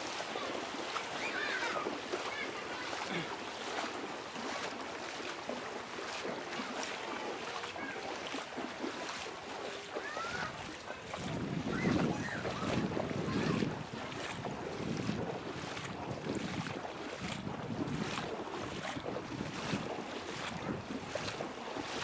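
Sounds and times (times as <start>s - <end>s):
low rumble of wind or water: 0.0s - 22.0s
river water rushing and splashing: 0.0s - 22.0s
wind buffeting microphone: 10.5s - 22.0s.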